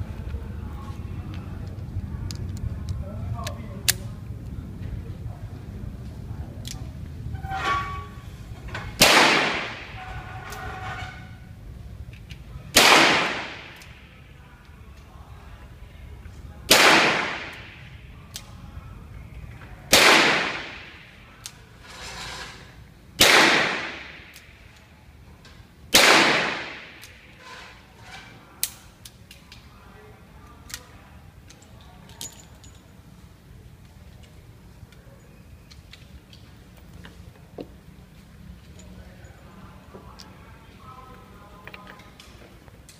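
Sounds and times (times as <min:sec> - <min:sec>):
revolver shots with echo: 0:08.9 - 0:10.0, 0:12.7 - 0:14.1, 0:16.7 - 0:18.0, 0:19.9 - 0:21.2, 0:23.2 - 0:24.6, 0:25.9 - 0:27.2.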